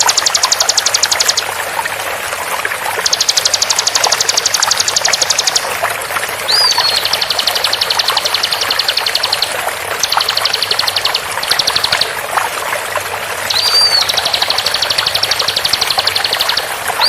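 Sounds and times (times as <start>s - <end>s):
bird rapid rattling trill: 0.0s - 1.5s, 3.0s - 5.8s, 6.5s - 12.2s, 13.5s - 17.0s
water trickling: 0.0s - 17.0s
bird up-and-down whistle: 13.5s - 14.2s.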